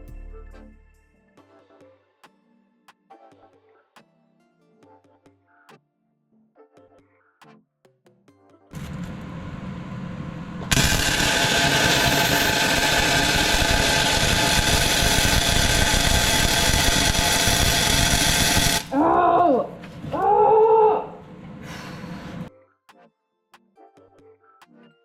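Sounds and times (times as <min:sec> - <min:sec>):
short rising and falling tones: 0:08.8 - 0:18.9
power tool running: 0:08.8 - 0:19.0.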